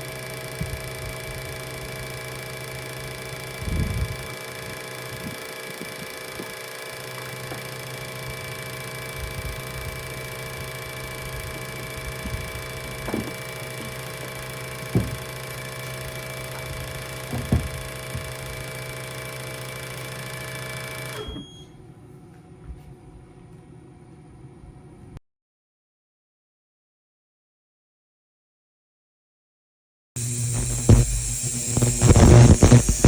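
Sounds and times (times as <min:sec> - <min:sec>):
machine buzzing whir: 0:00.0 - 0:21.5, 0:30.2 - 0:33.0.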